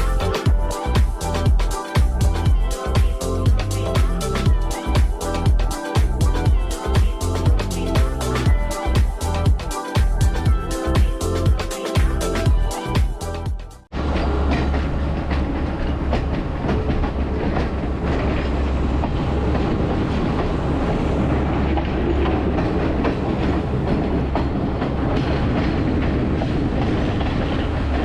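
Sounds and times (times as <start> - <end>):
train rumbling: 0.0 - 28.0
wheels clicking over rails: 14.0 - 28.0.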